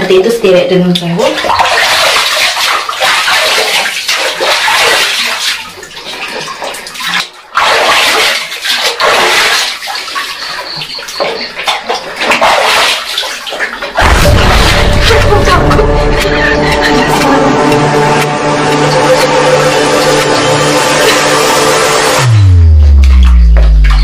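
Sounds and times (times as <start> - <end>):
water pouring and splashing: 0.9 - 24.0
music with heavy beat: 14.0 - 24.0.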